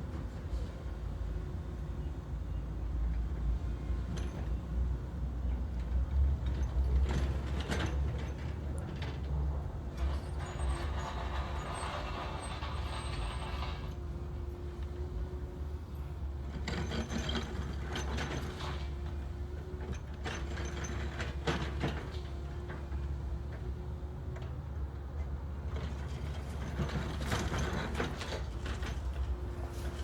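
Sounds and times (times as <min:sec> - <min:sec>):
mechanical clanks and creaks: 0:03.4 - 0:04.8, 0:05.5 - 0:15.0, 0:16.4 - 0:23.6, 0:25.2 - 0:30.0
diesel engine rumbling: 0:03.5 - 0:24.4.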